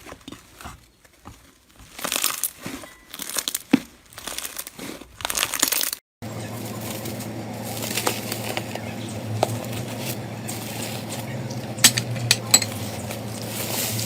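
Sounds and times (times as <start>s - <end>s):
slime crackling: 1.4s - 6.0s, 6.6s - 11.8s
steady low hum: 6.2s - 14.0s.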